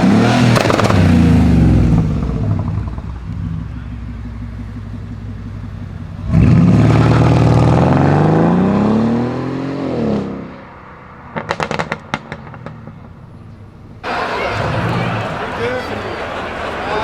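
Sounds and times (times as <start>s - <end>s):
exhaust cracks: 0.0s - 8.2s, 11.3s - 13.3s
car engine revving: 0.0s - 17.0s.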